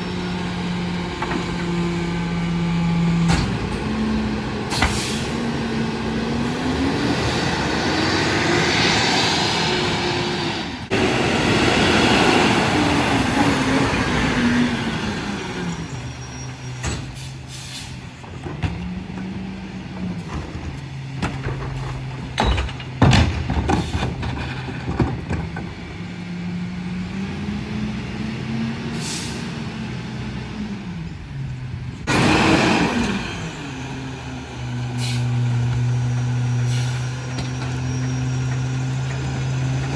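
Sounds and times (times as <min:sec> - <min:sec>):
garbage truck engine revving: 0:00.0 - 0:39.9
loud rushing noise: 0:05.4 - 0:14.8
sharp knocks and bangs: 0:20.3 - 0:25.8.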